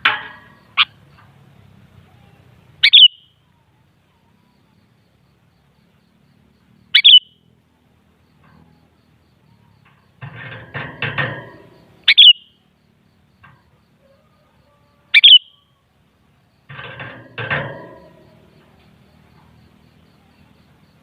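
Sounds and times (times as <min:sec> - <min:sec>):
bird sharp chirps: 0:02.1 - 0:03.5, 0:06.9 - 0:07.5, 0:12.0 - 0:12.6, 0:15.1 - 0:15.8.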